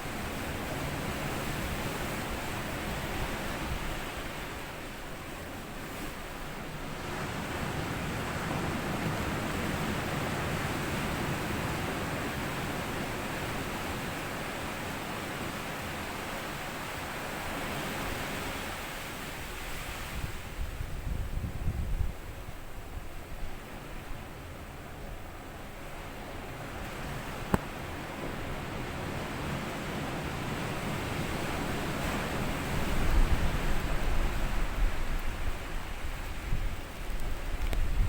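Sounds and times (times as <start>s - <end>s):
sea waves on sandy beach: 22.2s - 38.0s.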